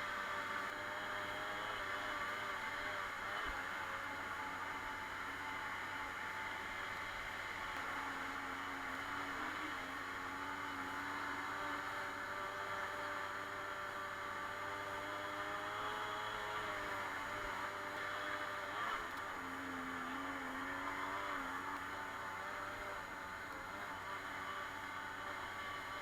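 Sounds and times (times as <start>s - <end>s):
moped two-stroke engine running: 0.0s - 26.0s.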